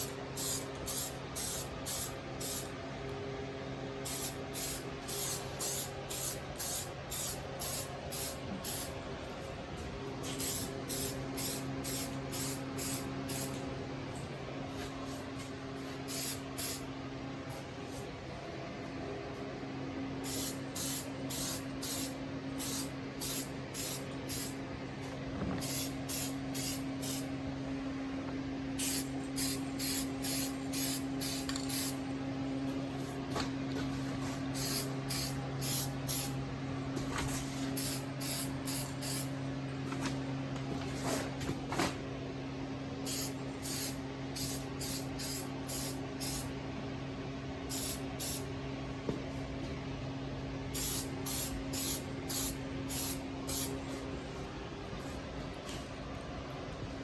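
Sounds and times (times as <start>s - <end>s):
spray paint can spraying: 0.0s - 2.7s, 4.1s - 8.9s, 10.4s - 13.6s, 16.1s - 16.8s, 20.2s - 24.5s, 25.6s - 27.3s, 28.8s - 32.0s, 34.6s - 36.3s, 37.8s - 39.3s, 43.1s - 46.5s, 47.7s - 48.4s, 50.8s - 53.8s
steady low hum: 0.0s - 57.0s.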